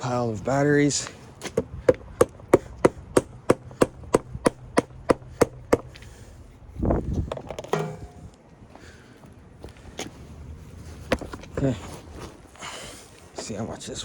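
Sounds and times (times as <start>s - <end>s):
sharp knocks like hammer blows: 1.5s - 6.0s.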